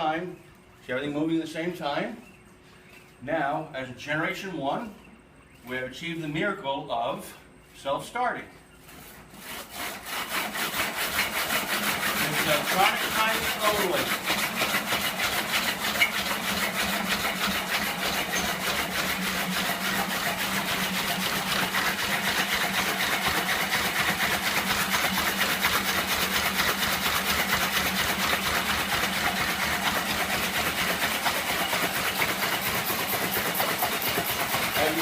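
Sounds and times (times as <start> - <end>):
machine humming: 0.0 - 35.0
fast mechanical ticking: 10.7 - 35.0.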